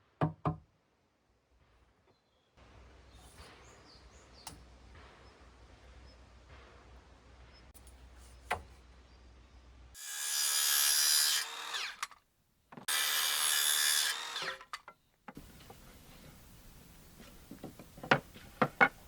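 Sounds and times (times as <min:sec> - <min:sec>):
power tool cutting wood: 0:10.0 - 0:12.2, 0:12.8 - 0:14.8.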